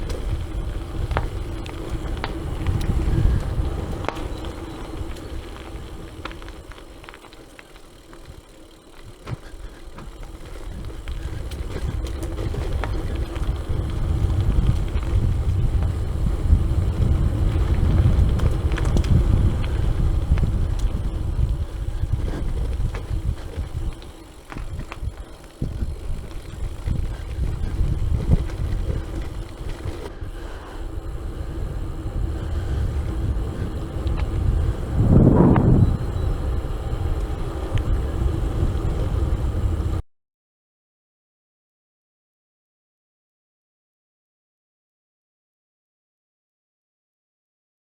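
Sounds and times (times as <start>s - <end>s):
wind buffeting microphone: 0.0s - 7.1s, 9.0s - 40.0s
bicycle tyres rumbling: 0.0s - 40.0s
bike small clicks: 0.0s - 40.0s.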